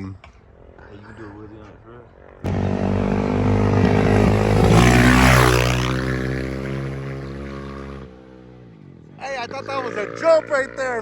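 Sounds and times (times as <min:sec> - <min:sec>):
dirt bike engine passing by: 0:02.2 - 0:11.0.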